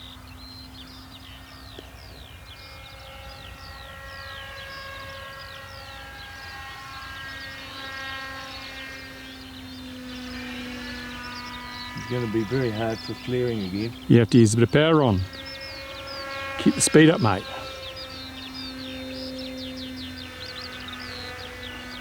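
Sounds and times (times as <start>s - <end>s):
birds chirping: 0.0s - 22.0s
model plane motor humming: 0.0s - 22.0s.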